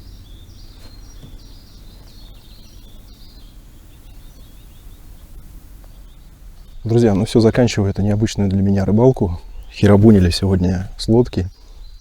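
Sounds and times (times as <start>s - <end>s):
low outdoor background hum: 0.0s - 12.0s
small songbird singing: 0.0s - 12.0s.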